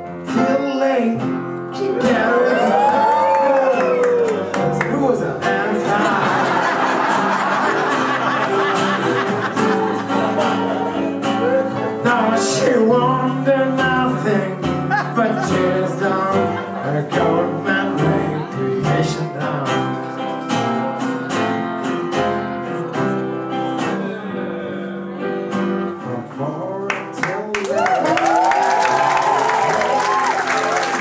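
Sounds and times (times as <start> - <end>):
blues band playing: 0.0 - 27.5.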